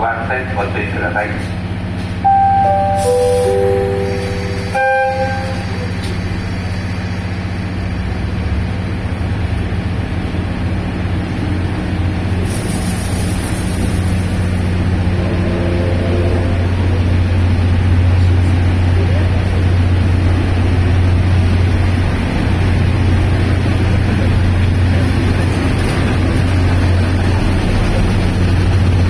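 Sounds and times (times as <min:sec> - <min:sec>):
train moving off hum: 0:00.0 - 0:29.0
train horn toot: 0:02.3 - 0:06.1, 0:15.1 - 0:17.1.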